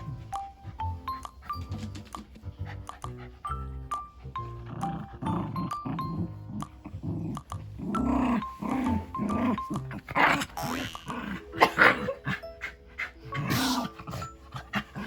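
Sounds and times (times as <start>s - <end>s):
background music: 0.0s - 15.0s
dog growling and snorting: 4.5s - 12.5s, 13.3s - 15.0s.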